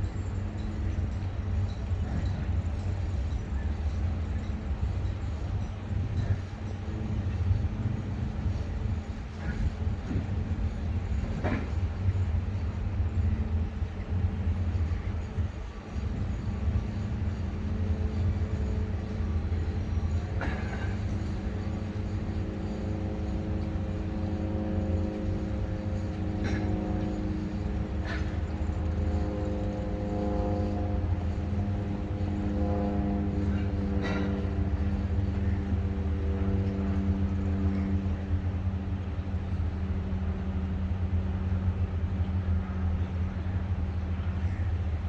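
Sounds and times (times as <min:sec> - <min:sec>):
distant construction machinery rumble: 0:00.0 - 0:45.0
engine-like drone: 0:00.0 - 0:45.0.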